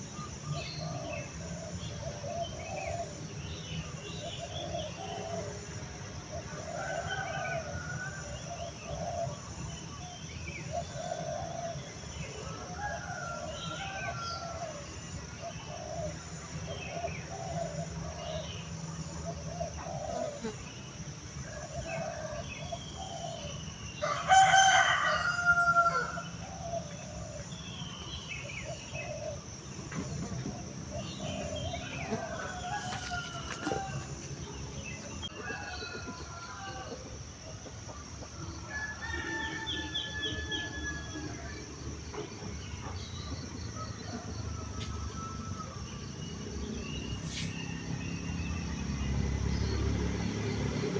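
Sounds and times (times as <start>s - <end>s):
small birds chirping: 6.3s - 50.9s
rooster crowing: 6.5s - 8.5s, 24.0s - 26.6s, 31.1s - 37.2s, 38.4s - 41.6s, 43.7s - 48.8s.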